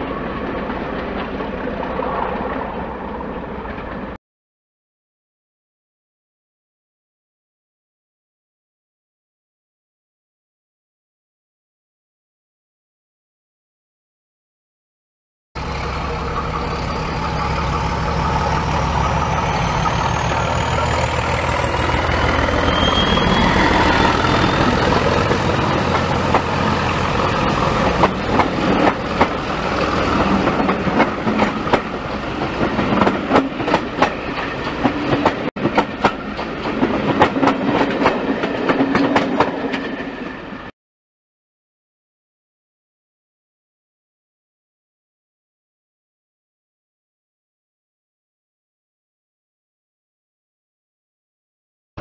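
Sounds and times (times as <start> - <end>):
diesel train engine rumble: 0.0 - 4.2, 15.6 - 40.7.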